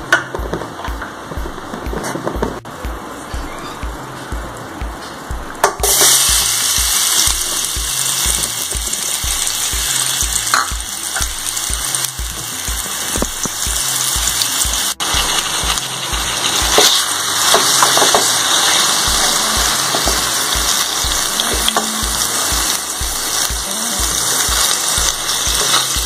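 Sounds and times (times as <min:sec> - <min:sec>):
background music with steady beat: 0:00.0 - 0:26.0
prawns sizzling in hot oil: 0:05.8 - 0:26.0.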